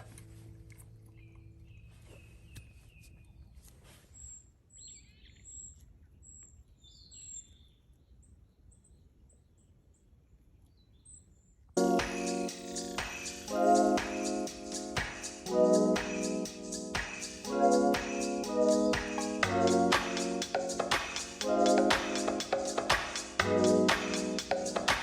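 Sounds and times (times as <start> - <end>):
background music: 11.8 - 25.0.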